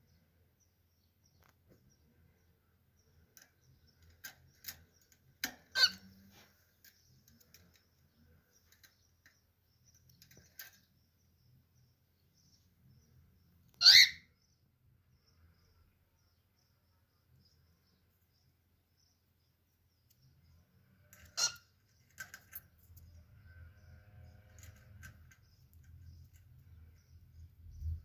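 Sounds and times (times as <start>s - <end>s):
cockatiel chirping: 5.7s - 6.1s, 13.7s - 14.3s, 21.3s - 21.7s.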